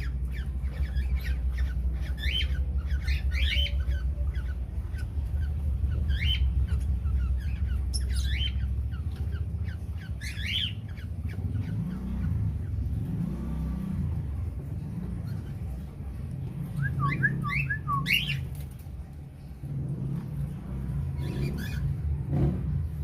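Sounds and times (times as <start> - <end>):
parrots squawking: 0.0 - 13.0, 21.2 - 22.1
steady low hum: 0.0 - 23.0.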